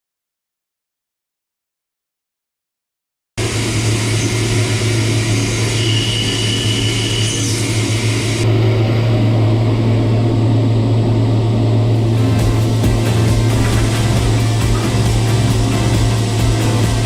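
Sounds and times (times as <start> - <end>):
machine hiss: 3.4 - 8.4, 12.0 - 17.0
high whine: 3.4 - 17.0
machine low hum: 3.4 - 17.0.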